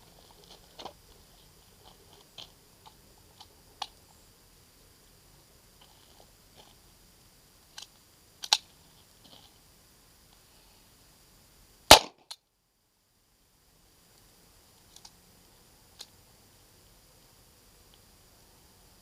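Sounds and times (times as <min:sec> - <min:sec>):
pistol and magazine clicking: 0:11.9 - 0:12.4.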